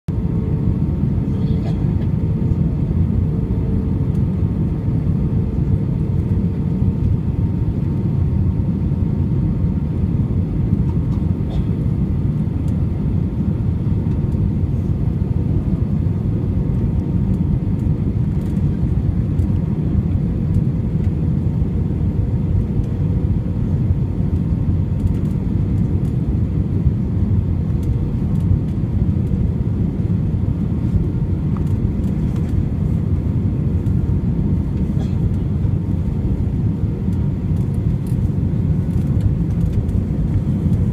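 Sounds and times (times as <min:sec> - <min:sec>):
jet engines rumbling in cabin: 0:00.1 - 0:40.9.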